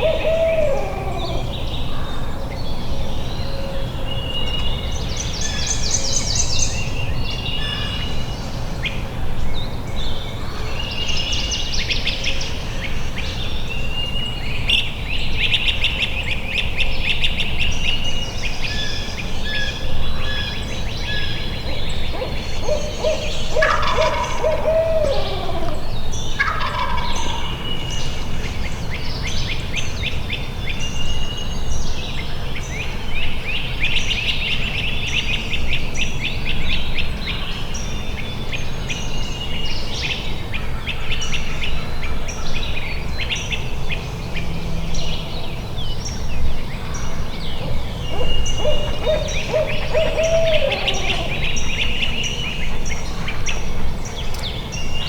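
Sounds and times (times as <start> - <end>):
songbirds singing: 0.0 - 55.0
turkey gobbling: 21.6 - 25.8, 26.4 - 27.6, 48.1 - 51.5.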